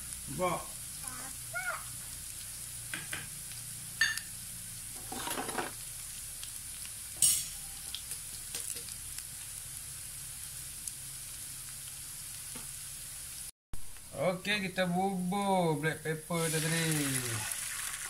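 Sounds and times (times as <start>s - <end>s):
shallots sizzling in hot oil: 0.0s - 14.2s, 14.8s - 18.0s
scrape in pan: 5.0s - 5.8s.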